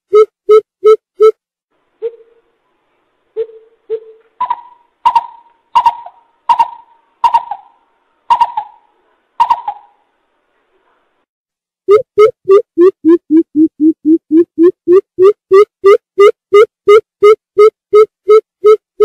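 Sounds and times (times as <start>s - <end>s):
coucal hooting: 3.4s - 10.0s.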